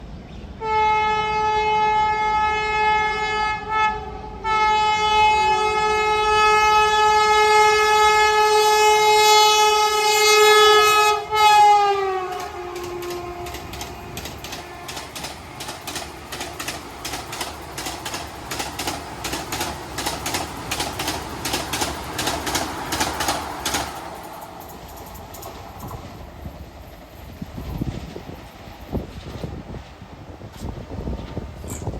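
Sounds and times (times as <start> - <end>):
train horn blasts: 0.6 - 15.4
train wheels clacking on rails: 8.1 - 31.9.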